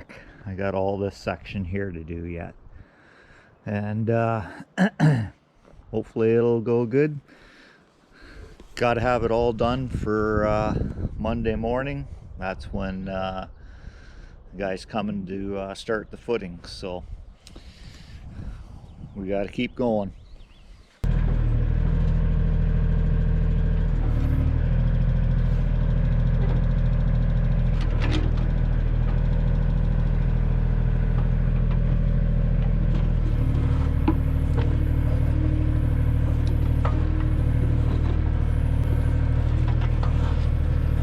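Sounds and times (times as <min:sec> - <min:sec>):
tractor diesel engine running: 0:21.0 - 0:41.0.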